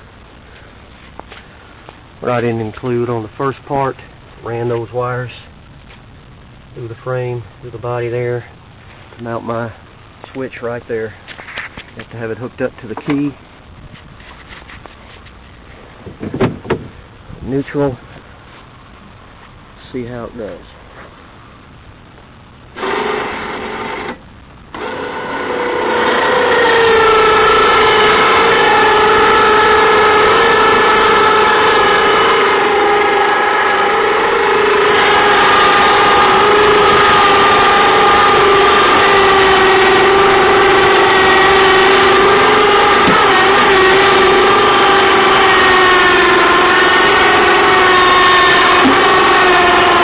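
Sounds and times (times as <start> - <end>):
electric winch motor whining: 22.8 - 50.0.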